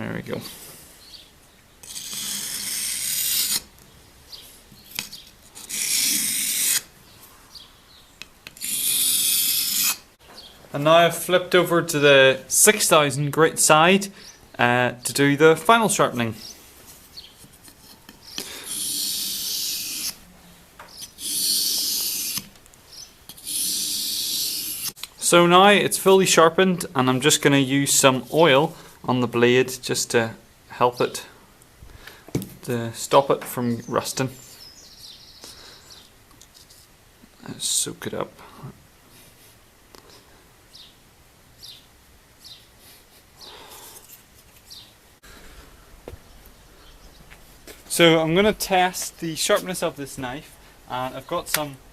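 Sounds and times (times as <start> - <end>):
knife scraping on whetstone: 1.8 - 3.7, 4.9 - 6.9, 8.5 - 10.0, 17.4 - 20.2, 21.0 - 22.5, 23.3 - 25.0
small bird chirping: 16.4 - 17.5, 20.9 - 25.0, 33.8 - 36.2, 40.7 - 41.0, 41.6 - 42.7, 44.6 - 45.0, 46.2 - 47.4.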